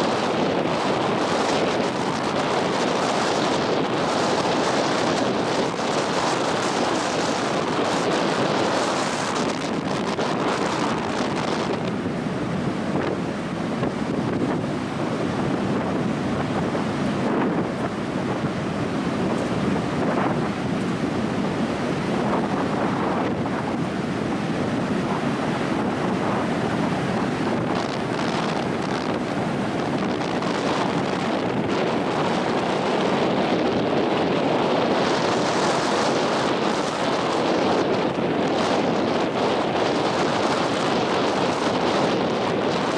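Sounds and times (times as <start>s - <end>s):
ocean surf on beach: 0.0s - 42.9s
wind buffeting microphone: 0.0s - 42.9s.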